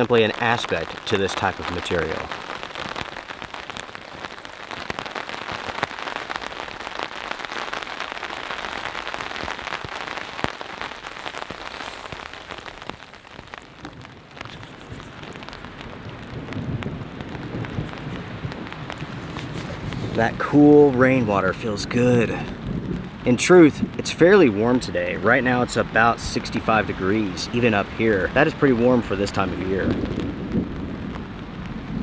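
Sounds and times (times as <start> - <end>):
raindrops ticking: 0.0 - 32.0
steady rainfall hiss: 0.0 - 32.0.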